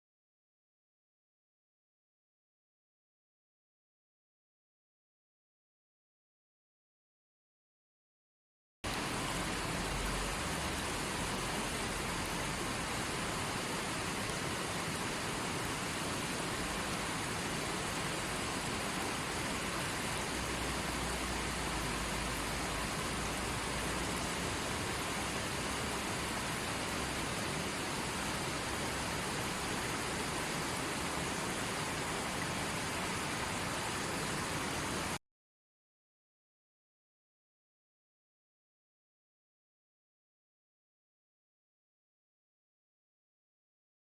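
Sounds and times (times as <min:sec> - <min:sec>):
steady rushing hiss: 0:08.9 - 0:35.2.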